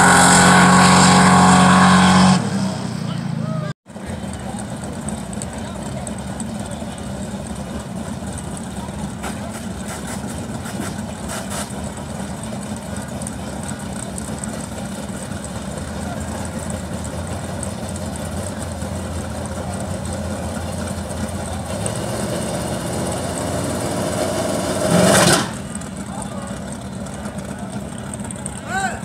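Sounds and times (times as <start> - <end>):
loud engine burst: 0.0 - 4.5, 21.4 - 26.6
drag car engine idling: 3.1 - 29.0.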